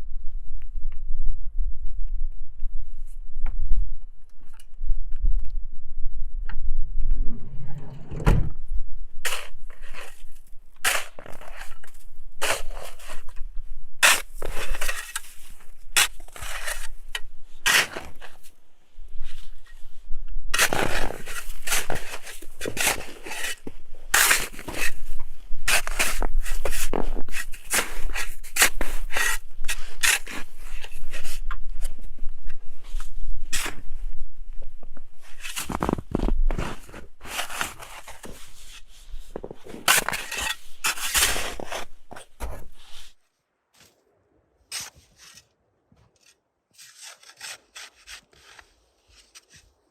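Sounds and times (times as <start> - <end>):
scraping and crunching strokes: 9.2 - 18.6, 20.5 - 33.9, 35.2 - 43.2, 44.7 - 49.9.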